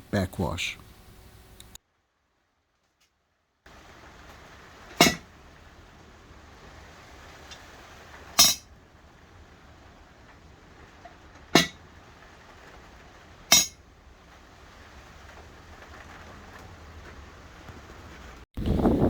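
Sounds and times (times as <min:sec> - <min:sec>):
sharp clinking knocks: 0:05.0 - 0:05.3, 0:08.4 - 0:08.6, 0:13.5 - 0:13.8.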